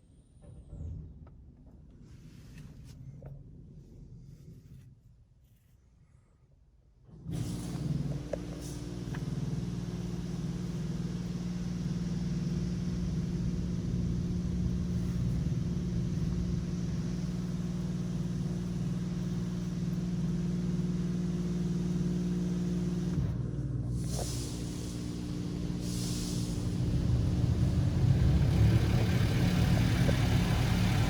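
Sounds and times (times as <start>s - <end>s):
car wash machinery humming: 7.4s - 31.0s
water spray hiss: 24.1s - 31.0s.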